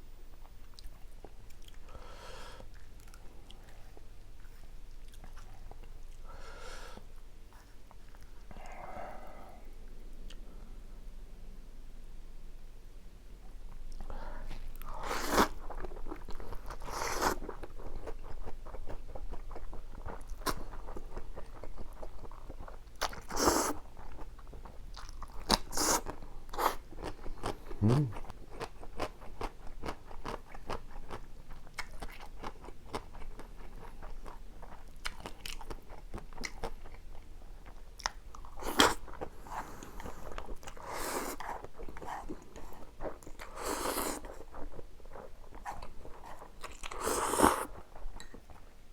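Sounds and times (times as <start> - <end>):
noodle slurping: 23.3 - 23.8, 46.9 - 47.8.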